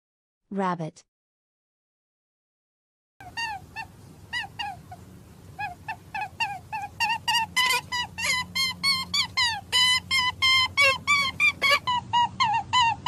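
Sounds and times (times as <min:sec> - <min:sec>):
rabbit squeaking: 0:03.2 - 0:13.0.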